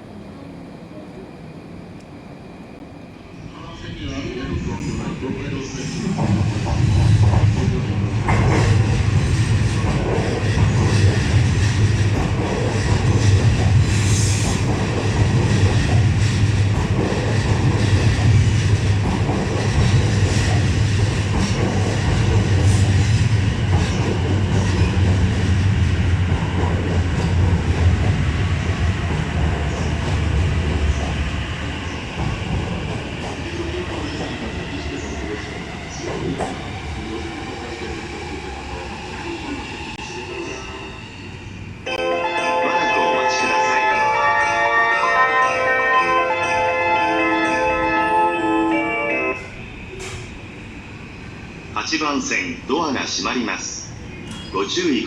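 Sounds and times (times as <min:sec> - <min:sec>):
train wheels clattering on rails: 0:06.0 - 0:31.3, 0:49.9 - 0:50.5.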